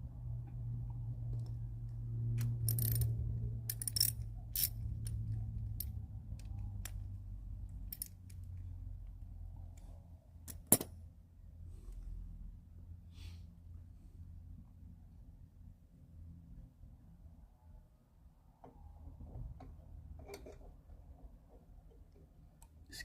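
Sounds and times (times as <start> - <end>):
low steady hum: 0.0 - 23.0
small metal parts clinking: 2.4 - 7.1, 7.8 - 8.6, 10.5 - 10.9.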